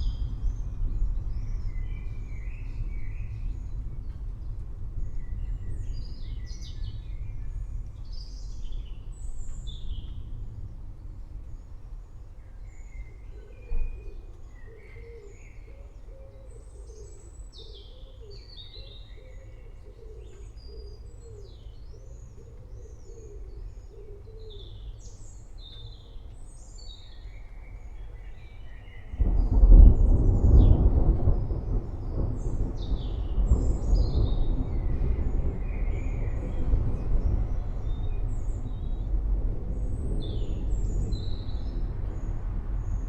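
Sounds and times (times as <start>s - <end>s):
songbirds chirping and singing: 12.4s - 43.0s
thunder rumbling: 29.1s - 43.0s.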